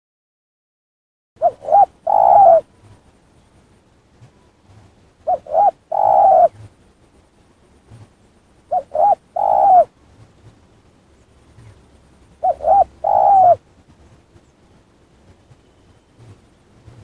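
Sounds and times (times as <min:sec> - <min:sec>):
dove cooing: 0:01.4 - 0:03.0, 0:04.7 - 0:06.8, 0:08.7 - 0:10.0, 0:11.6 - 0:13.6.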